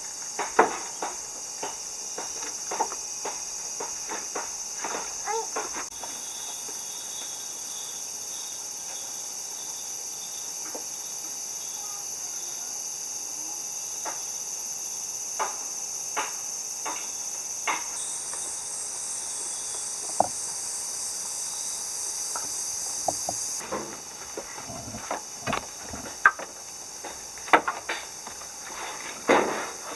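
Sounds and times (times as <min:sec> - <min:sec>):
pulsing insect call: 0:16.9 - 0:29.9
insects shrilling high: 0:17.9 - 0:29.9.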